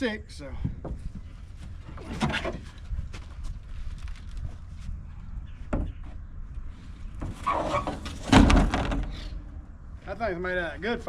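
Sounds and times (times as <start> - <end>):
clicks and knocks on truck: 7.2 - 9.4.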